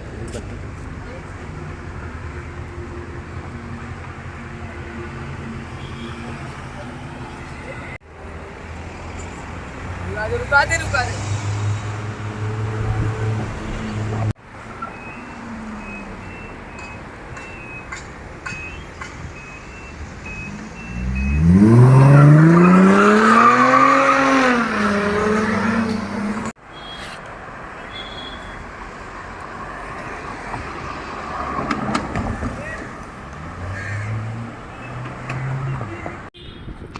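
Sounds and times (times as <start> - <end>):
street traffic noise: 0.0 - 36.9
sports car engine revving: 20.9 - 26.5.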